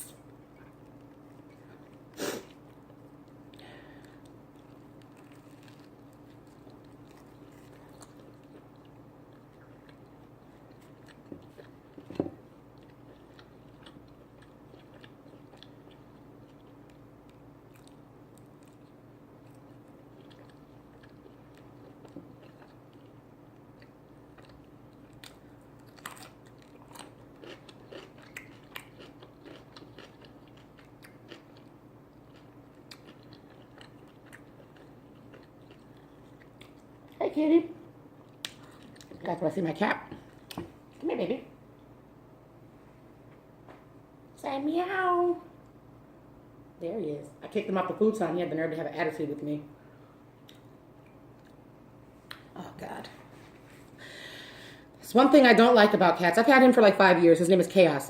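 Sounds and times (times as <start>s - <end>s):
chewing and biting food: 0.6s - 37.2s, 38.1s - 39.3s.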